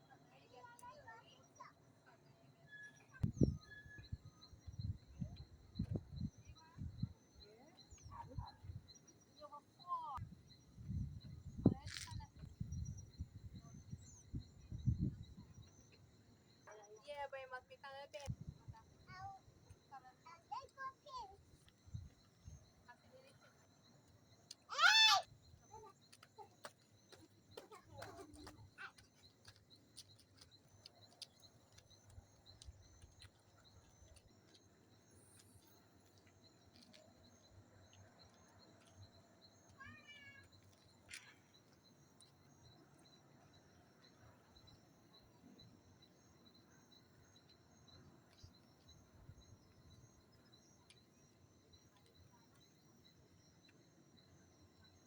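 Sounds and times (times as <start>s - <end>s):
faint chirps: 0.2s - 55.0s.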